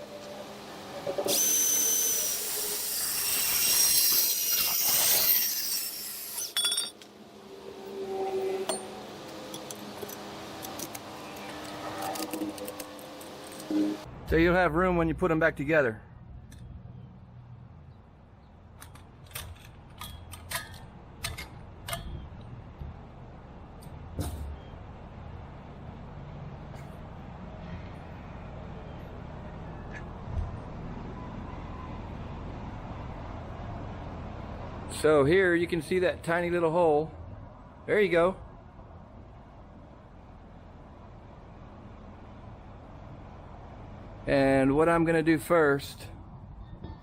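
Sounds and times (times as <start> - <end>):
bandsaw cutting metal pipe: 1.2 - 7.0
metal pipes clinking: 6.4 - 7.1.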